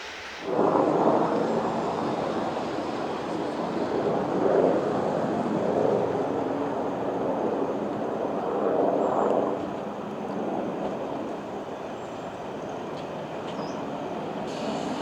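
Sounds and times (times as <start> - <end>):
train running through station: 0.0 - 7.9, 9.5 - 15.0.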